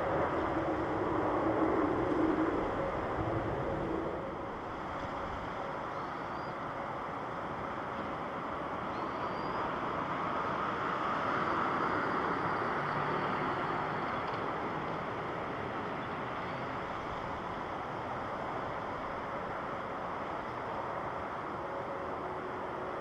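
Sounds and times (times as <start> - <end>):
jet engines rushing: 0.0 - 4.9.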